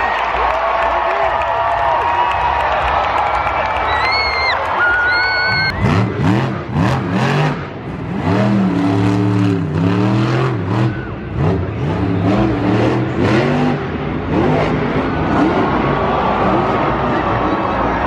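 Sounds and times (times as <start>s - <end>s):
monster truck engine revving: 5.2s - 18.0s.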